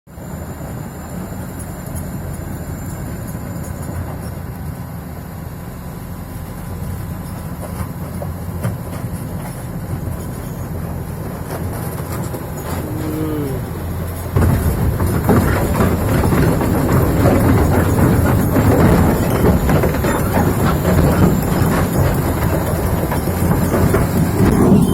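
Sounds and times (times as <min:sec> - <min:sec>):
excavator diesel engine droning: 0:00.1 - 0:24.9.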